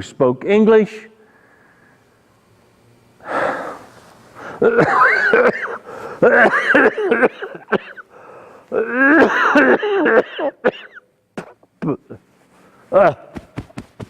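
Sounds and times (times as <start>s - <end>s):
man coughing and wheezing: 4.4s - 8.1s, 8.7s - 12.2s.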